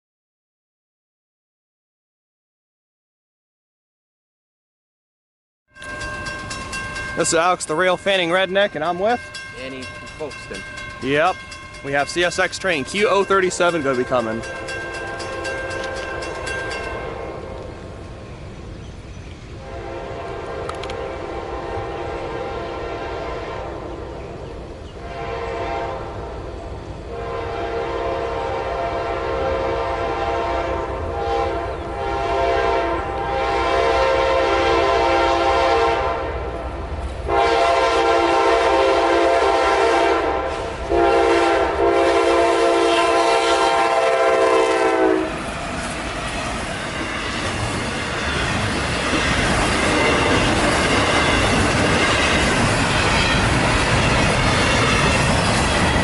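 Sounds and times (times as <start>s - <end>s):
train wheels clattering on rails: 5.8s - 19.5s, 45.3s - 56.0s
locomotive air horn blasts: 19.6s - 23.9s, 25.0s - 26.2s, 27.1s - 36.6s, 37.3s - 45.4s, 49.2s - 52.4s.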